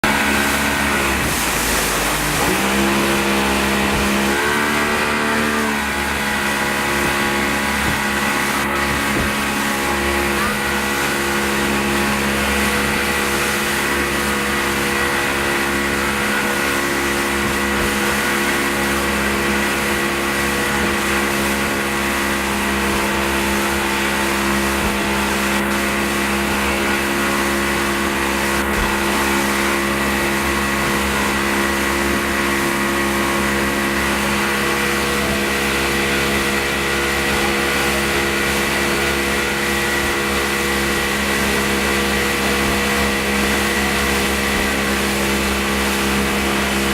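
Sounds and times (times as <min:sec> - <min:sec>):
motorboat engine droning: 0:00.0 - 0:46.9.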